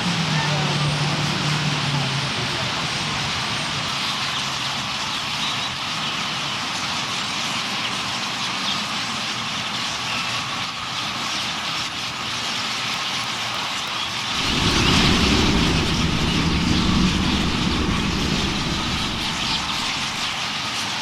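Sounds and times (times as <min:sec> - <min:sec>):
flock of birds chirping: 0:14.4 - 0:20.3.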